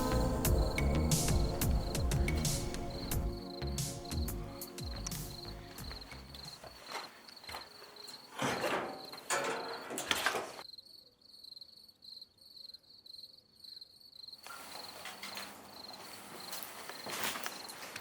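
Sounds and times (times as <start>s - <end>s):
crickets chirping: 0.0s - 18.0s
rustling crunching noises: 4.8s - 10.6s, 14.4s - 18.0s.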